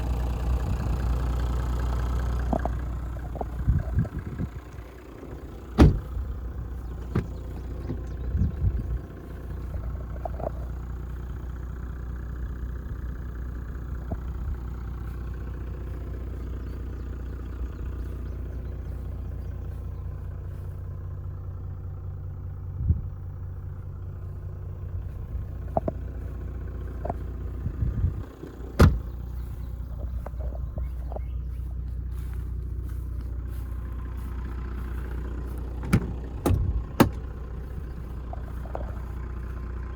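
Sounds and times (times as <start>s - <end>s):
diesel engine droning: 0.0s - 39.9s
sharp knocks and clicks: 35.8s - 37.2s.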